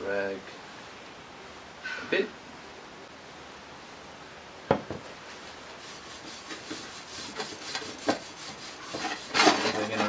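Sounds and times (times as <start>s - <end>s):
rag rubbing on metal: 5.3s - 10.0s.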